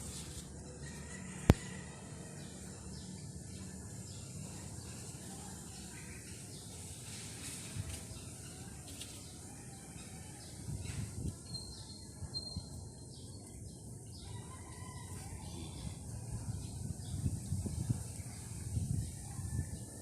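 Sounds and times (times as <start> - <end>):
faint bird chirps: 8.2 - 13.6.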